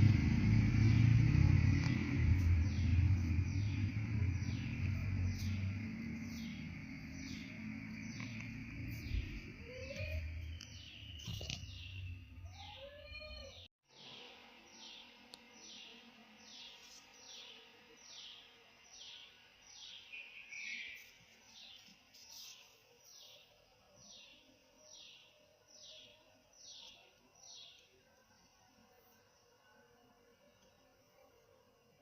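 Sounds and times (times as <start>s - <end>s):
bird calling high downward notes: 0.0s - 13.6s.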